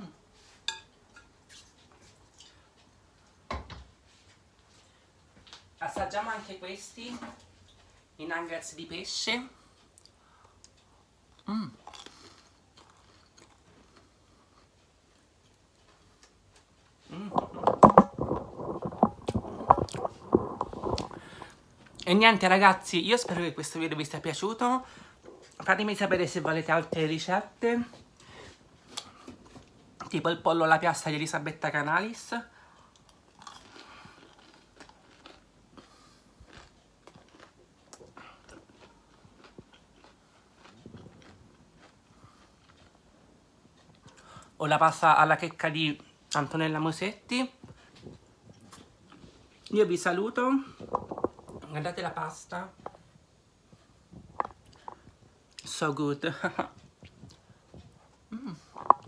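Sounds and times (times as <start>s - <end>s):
soft chewing: 0.0s - 3.4s, 9.5s - 23.5s, 24.9s - 27.1s, 27.8s - 30.2s, 32.5s - 44.6s, 47.6s - 49.8s, 50.5s - 59.0s.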